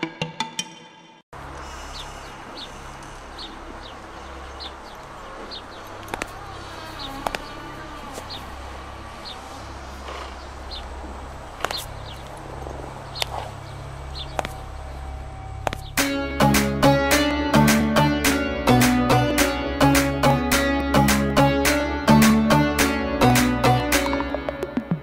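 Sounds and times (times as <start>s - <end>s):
bird chirping: 1.6s - 16.0s.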